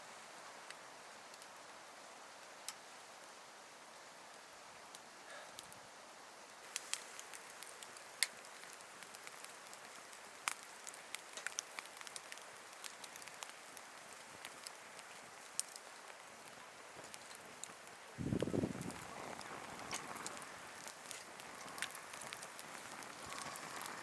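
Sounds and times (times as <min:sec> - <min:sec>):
campfire crackling: 0:00.1 - 0:24.0.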